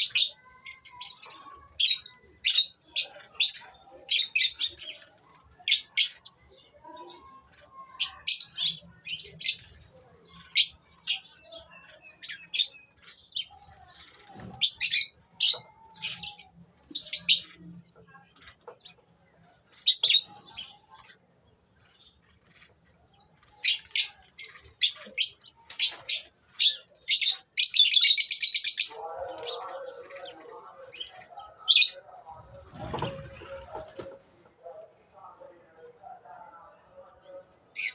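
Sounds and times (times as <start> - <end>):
birds chirping: 0.0 - 37.9.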